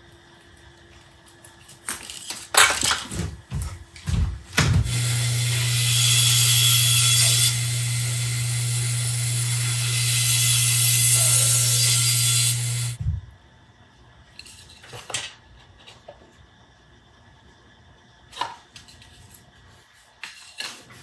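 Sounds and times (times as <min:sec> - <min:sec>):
power tool hum and hiss: 0:04.8 - 0:13.0.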